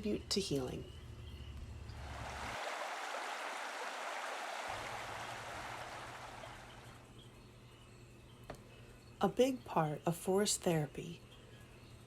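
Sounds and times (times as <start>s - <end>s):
stream water rushing: 2.0s - 6.8s.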